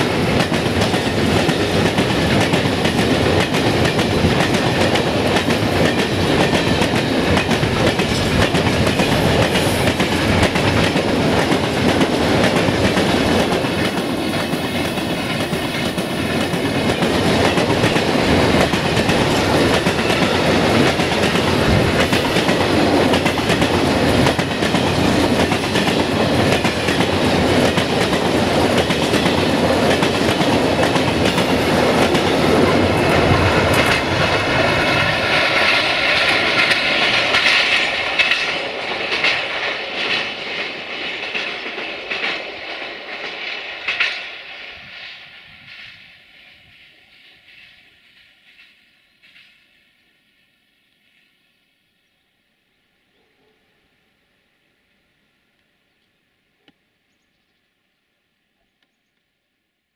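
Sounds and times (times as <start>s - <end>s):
freight train wheels clattering: 0.0s - 44.4s.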